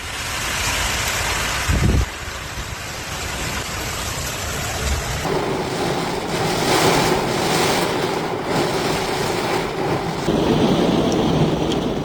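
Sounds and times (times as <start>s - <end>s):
rush of water: 0.0s - 12.0s
vehicle engine running: 5.3s - 12.0s.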